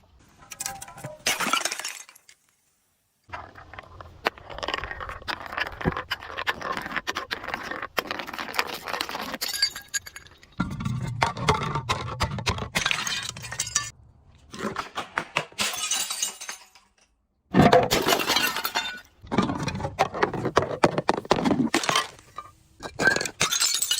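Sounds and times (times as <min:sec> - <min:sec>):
glass crushing and shattering: 0:00.5 - 0:02.5, 0:09.2 - 0:11.0, 0:12.7 - 0:13.9, 0:15.5 - 0:19.8, 0:21.7 - 0:23.9.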